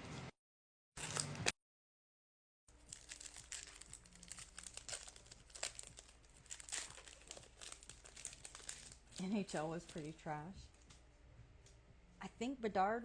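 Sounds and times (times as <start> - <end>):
plastic wrapper crinkling and tearing: 1.0 - 1.4, 2.7 - 10.2.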